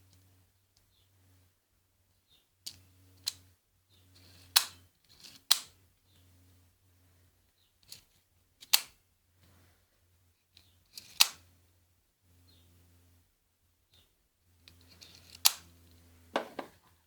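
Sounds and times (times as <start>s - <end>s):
airsoft pistol clacks and snaps: 4.5s - 4.8s, 5.5s - 5.8s, 8.6s - 9.0s, 10.6s - 11.5s, 14.7s - 15.7s.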